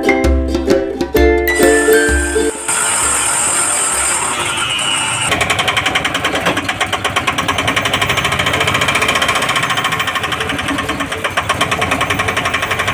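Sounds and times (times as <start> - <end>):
diesel engine knocking: 5.3 - 12.9.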